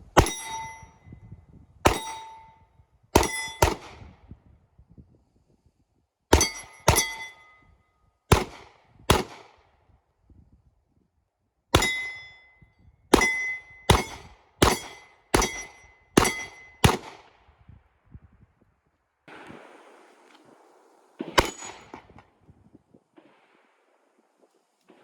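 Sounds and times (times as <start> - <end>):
metallic ring of steel targets: 0.2 - 1.3, 1.9 - 3.8, 6.3 - 7.8, 11.7 - 17.0, 21.4 - 22.2
gunshots: 3.2 - 4.0, 8.3 - 9.5, 13.1 - 17.3, 21.2 - 22.3.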